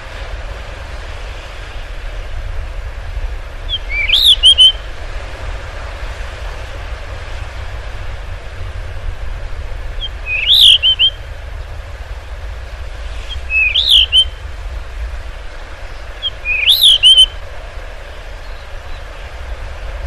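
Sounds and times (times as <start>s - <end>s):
low steady rumble: 0.0s - 20.0s
bird singing whistled warbles: 3.7s - 4.9s, 10.0s - 11.7s, 13.2s - 14.4s, 15.9s - 17.4s, 18.4s - 19.2s.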